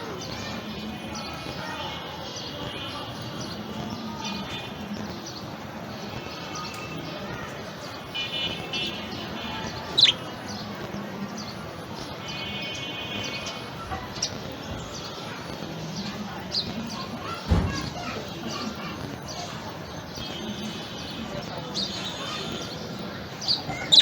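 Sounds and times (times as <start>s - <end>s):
budgerigar chirping and warbling: 9.9s - 10.2s
dull low thump: 17.5s - 18.0s.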